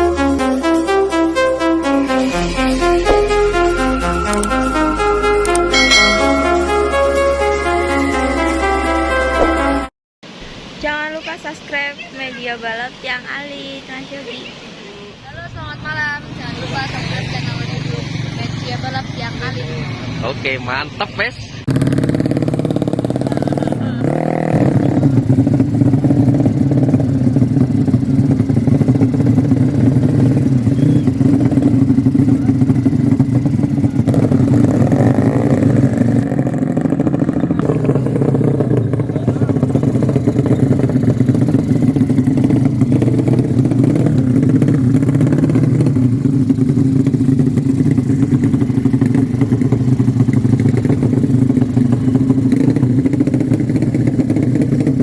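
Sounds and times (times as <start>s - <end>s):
motorcycle engine running: 21.7s - 55.0s.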